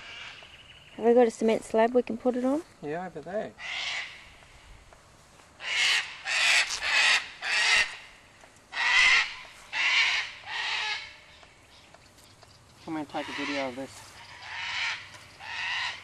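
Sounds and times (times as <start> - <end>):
bird cawing harshly: 3.6 - 4.3, 5.6 - 8.0, 8.7 - 11.3, 13.1 - 16.0.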